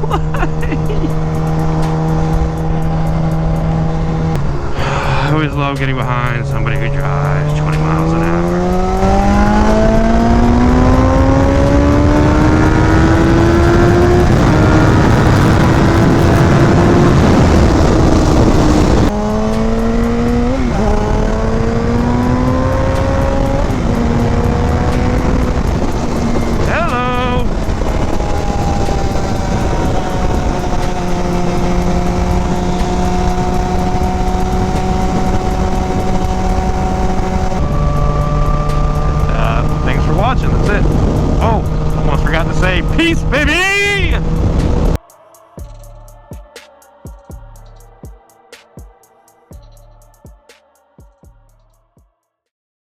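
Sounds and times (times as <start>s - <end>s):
motorcycle engine revving: 0.0s - 45.0s
wind rush on microphone: 8.6s - 45.0s.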